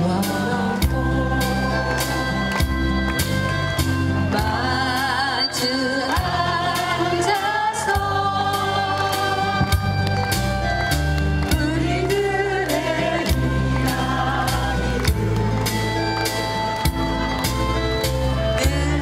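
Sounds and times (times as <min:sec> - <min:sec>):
person singing: 0:00.0 - 0:02.6
instrumental accompaniment with beat: 0:00.0 - 0:19.0.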